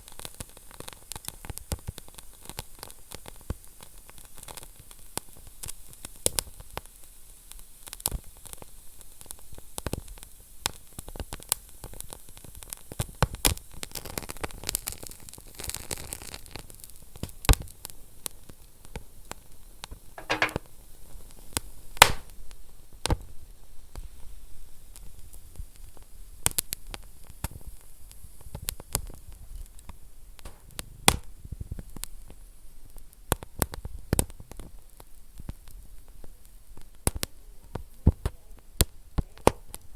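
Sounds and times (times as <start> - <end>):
fire crackling and popping: 22.0 - 22.3, 25.0 - 39.9.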